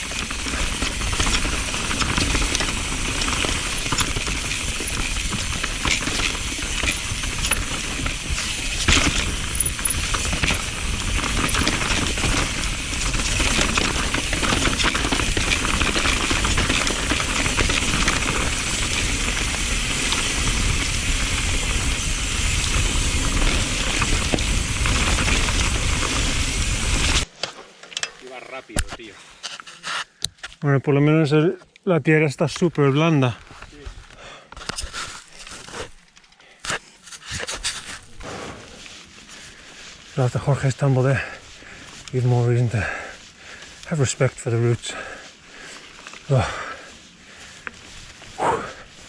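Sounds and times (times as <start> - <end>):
bike tyre and wind rush: 0.0 - 27.3, 37.3 - 49.0
bike clattering and rattling: 0.0 - 28.2, 36.7 - 49.0.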